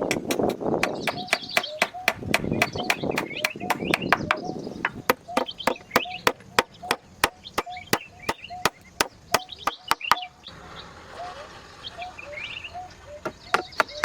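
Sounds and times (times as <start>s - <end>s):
blade chopping: 0.0s - 10.3s
birds chirping: 0.0s - 14.0s.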